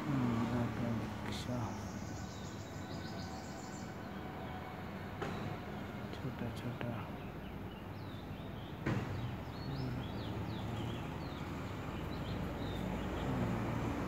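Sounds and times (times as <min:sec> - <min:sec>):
small birds chirping: 0:00.0 - 0:04.7, 0:06.2 - 0:14.0
knock: 0:08.8 - 0:09.2.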